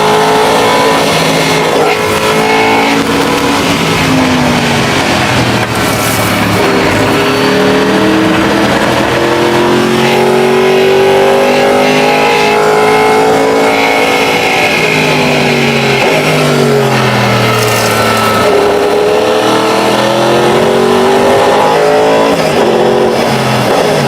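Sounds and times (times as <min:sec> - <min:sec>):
race car engine under load: 0:00.0 - 0:24.0.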